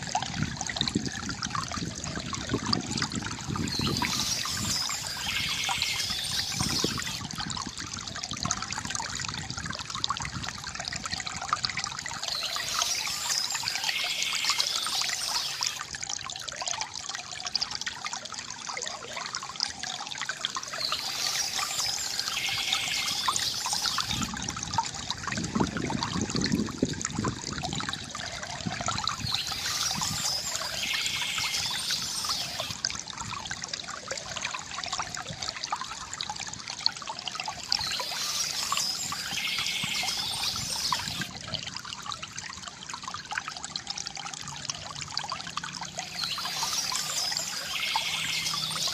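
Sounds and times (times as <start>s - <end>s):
river water gurgling: 0.0s - 48.9s
high chirping bird: 3.6s - 7.2s, 12.3s - 15.8s, 20.8s - 24.3s, 29.2s - 32.8s, 37.7s - 41.3s, 46.1s - 48.9s.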